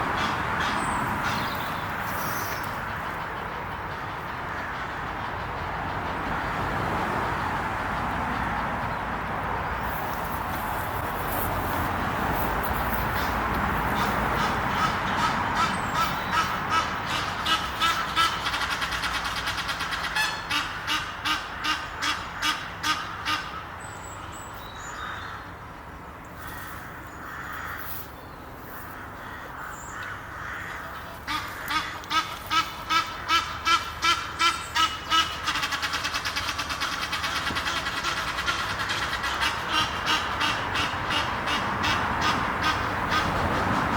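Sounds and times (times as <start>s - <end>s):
goose honking: 13.2s - 23.6s, 30.4s - 43.4s.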